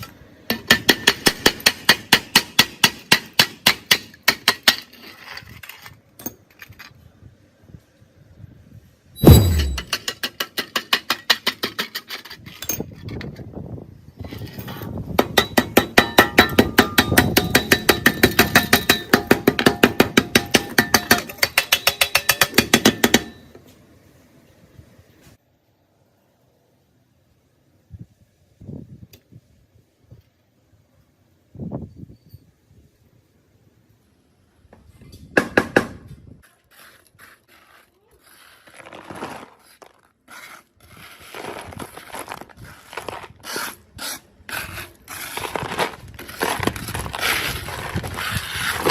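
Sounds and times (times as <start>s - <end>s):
hammer ringing on metal: 9.2s - 9.9s
sharp metal clacks: 9.2s - 11.6s.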